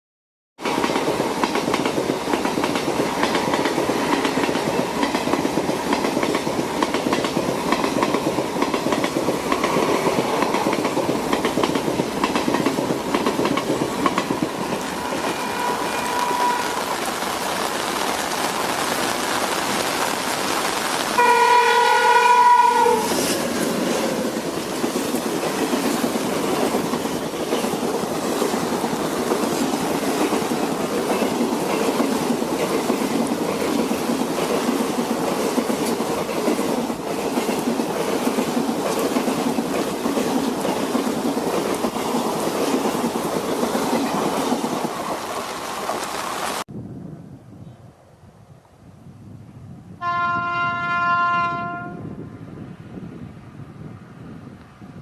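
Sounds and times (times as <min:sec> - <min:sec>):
train running on rails: 0:00.6 - 0:47.2, 0:49.9 - 0:55.0
train horn blast: 0:15.0 - 0:17.1, 0:21.2 - 0:23.2, 0:50.0 - 0:52.2.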